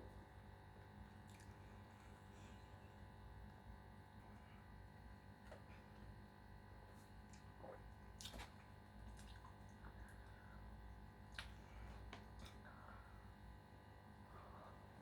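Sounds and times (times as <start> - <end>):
low steady hum: 0.0 - 15.0
mouth smacks while chewing: 1.2 - 1.6, 7.0 - 10.4, 11.2 - 12.6.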